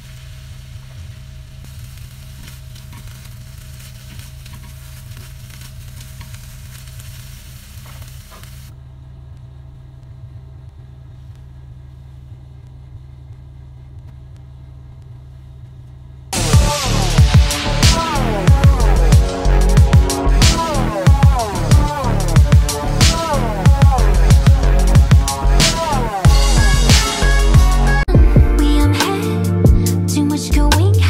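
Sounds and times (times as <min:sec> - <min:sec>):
chicken sizzling in a pan: 0:00.0 - 0:08.7
steady low hum: 0:00.0 - 0:31.0.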